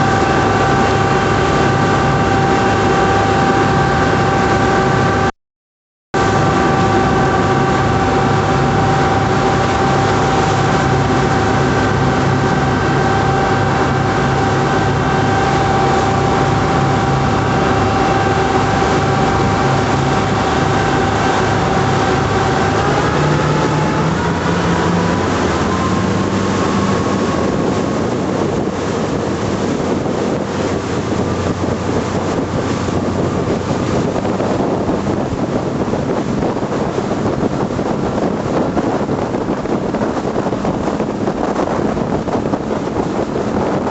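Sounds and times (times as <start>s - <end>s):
boat engines running: 0.0s - 5.3s, 6.2s - 43.9s
rush of wind and water: 0.0s - 5.3s, 6.2s - 43.9s.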